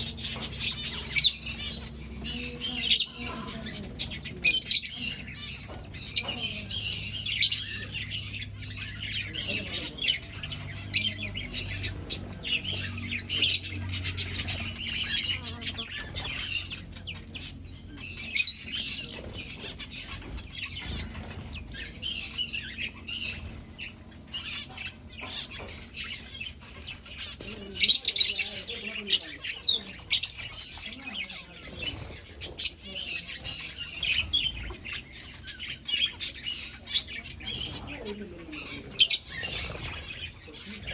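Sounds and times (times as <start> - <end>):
finches chirping: 0.0 - 40.9
wings fluttering: 0.0 - 40.9.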